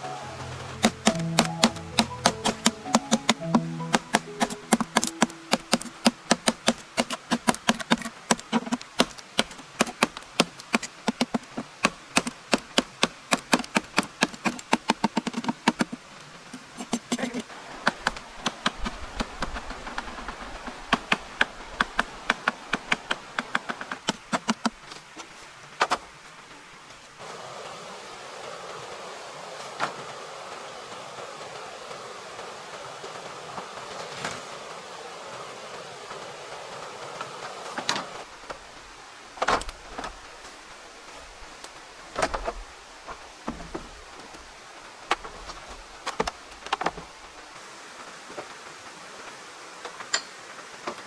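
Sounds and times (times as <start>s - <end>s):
rapid hammer blows: 0.4s - 16.0s.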